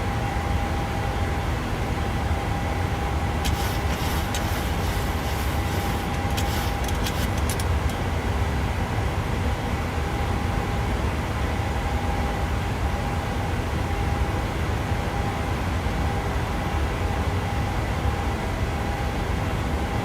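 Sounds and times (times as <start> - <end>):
faint steady whine: 0.0 - 8.0
airliner cabin engine rumble: 2.2 - 8.2.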